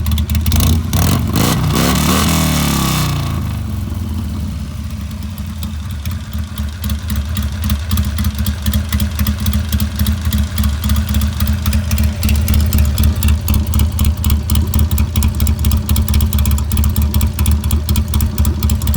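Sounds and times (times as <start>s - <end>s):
motorcycle engine pulsing exhaust: 0.0s - 18.9s.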